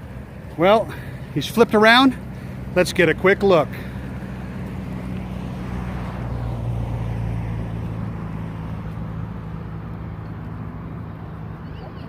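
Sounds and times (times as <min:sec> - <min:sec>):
boat outboard motor passing: 0:00.0 - 0:12.0.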